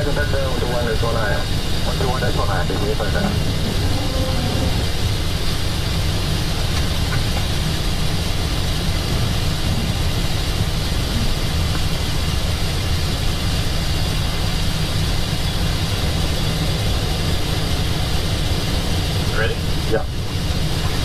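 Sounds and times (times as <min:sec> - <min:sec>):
low even hum: 0:00.0 - 0:21.0
rain beating on windscreen: 0:02.8 - 0:21.0.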